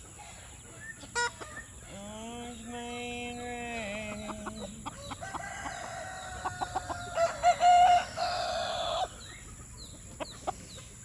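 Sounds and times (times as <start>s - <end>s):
chickens clucking: 0.0s - 11.0s
rooster crowing: 4.9s - 9.1s.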